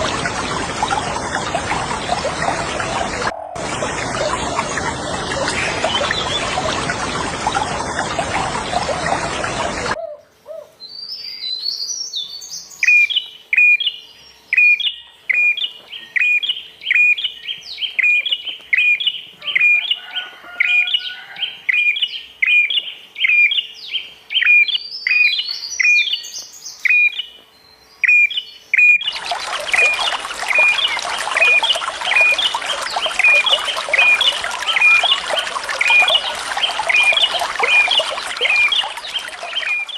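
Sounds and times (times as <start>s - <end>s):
running water: 0.0s - 10.0s, 29.0s - 39.9s
songbird calling and twittering: 10.8s - 39.9s.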